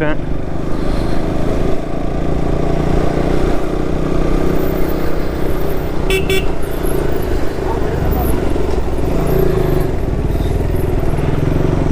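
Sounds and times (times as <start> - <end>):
motorcycle engine running: 0.0 - 11.9
short horn beeps: 6.1 - 6.6.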